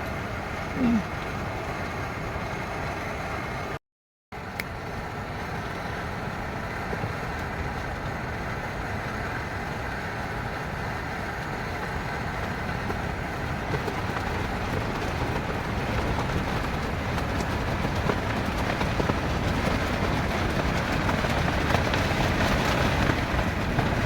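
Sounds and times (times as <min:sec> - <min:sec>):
heavy wind: 0:00.0 - 0:03.8, 0:04.4 - 0:24.0
rain: 0:00.0 - 0:03.8, 0:04.4 - 0:24.0
deep rumble: 0:11.7 - 0:24.0.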